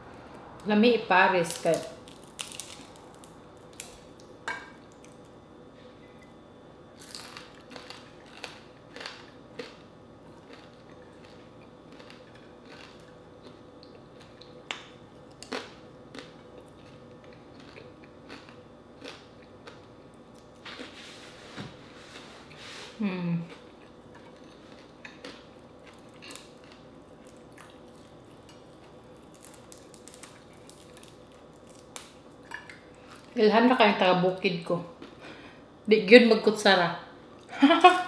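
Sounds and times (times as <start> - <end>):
chewing and crunching food: 7.0 - 21.2, 23.4 - 33.4, 34.9 - 35.4.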